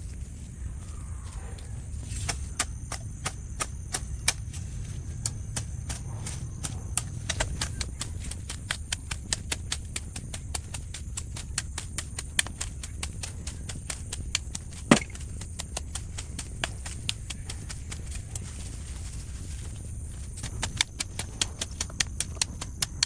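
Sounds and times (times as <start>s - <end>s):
sharp taps: 5.2s - 18.5s.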